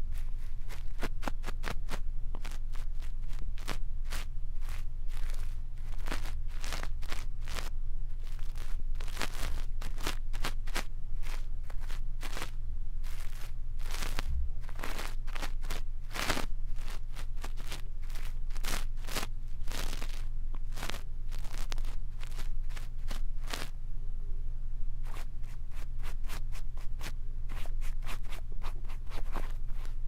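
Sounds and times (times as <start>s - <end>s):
brush scratching on microphone: 0.0s - 23.8s, 25.0s - 30.0s
steady low hum: 0.0s - 30.0s.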